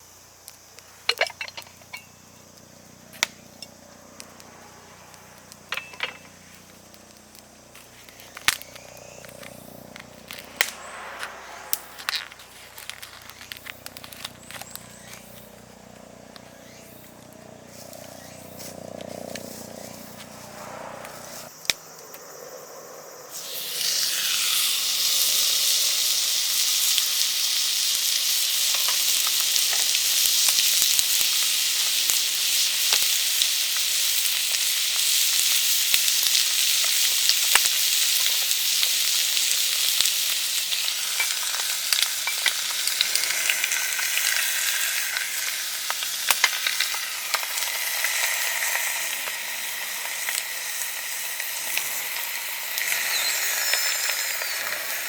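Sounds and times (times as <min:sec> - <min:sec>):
food sizzling in a hot pan: 0:23.3 - 0:55.0.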